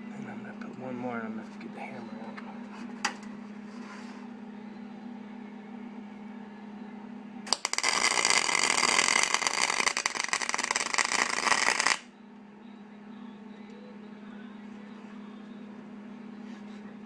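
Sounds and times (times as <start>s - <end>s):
welder arc crackling: 7.5s - 12.1s.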